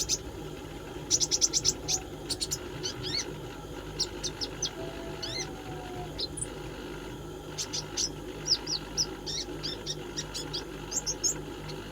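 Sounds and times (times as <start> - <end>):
steady low hum: 0.0 - 11.9
songbird chirping: 3.9 - 6.5.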